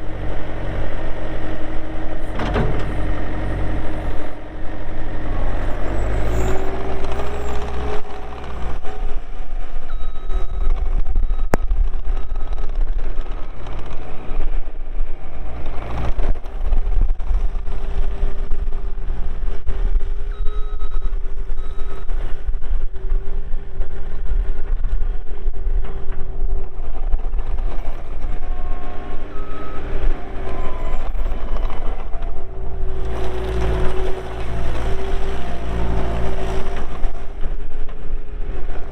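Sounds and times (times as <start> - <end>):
diesel engine running: 0.0 - 38.9
reversing alarm beeps: 9.9 - 12.7, 20.3 - 22.1.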